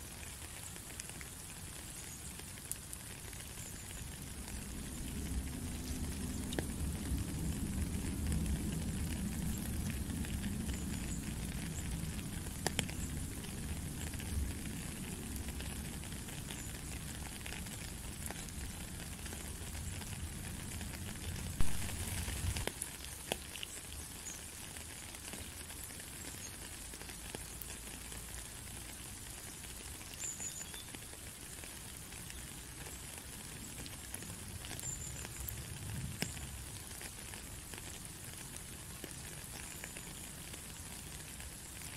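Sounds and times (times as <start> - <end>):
rain on a gravel path: 0.0 - 41.9
low rumble: 21.5 - 22.6.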